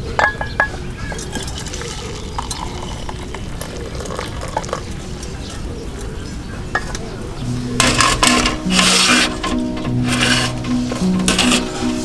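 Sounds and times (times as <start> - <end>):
metal utensils clinking and scraping: 0.0 - 2.6, 6.8 - 12.0.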